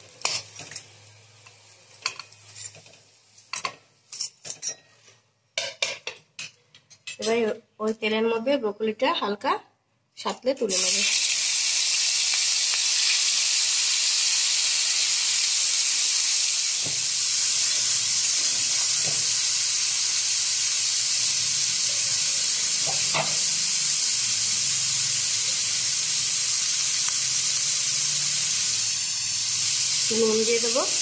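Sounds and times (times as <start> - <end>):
broccoli sizzling in hot oil: 0.0 - 4.3, 10.7 - 31.0.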